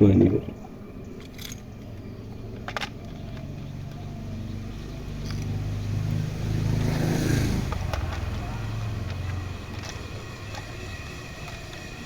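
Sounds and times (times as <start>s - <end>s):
vehicle engine running: 0.6s - 12.0s
plastic toy parts clicking: 1.2s - 1.6s, 7.7s - 11.9s.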